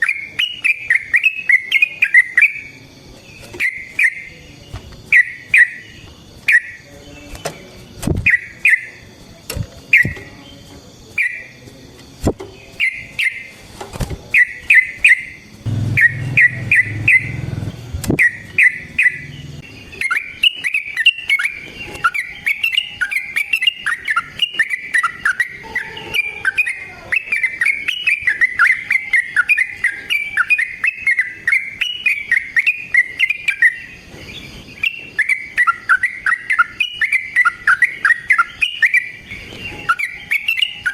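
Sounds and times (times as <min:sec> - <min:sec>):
bird calling in bubbly phrases: 0:14.7 - 0:33.8
brief low rumble: 0:15.7 - 0:18.3.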